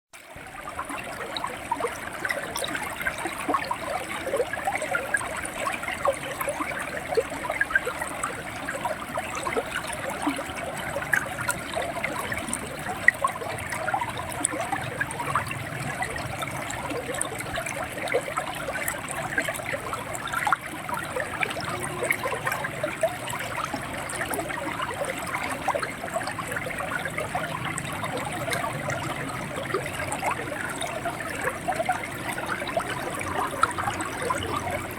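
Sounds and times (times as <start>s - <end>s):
river water gurgling over stones: 0.2s - 34.9s.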